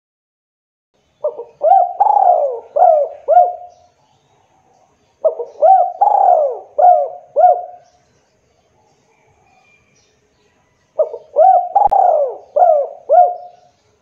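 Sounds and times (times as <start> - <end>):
dove cooing: 1.2 - 3.9, 5.2 - 7.9, 11.0 - 13.7.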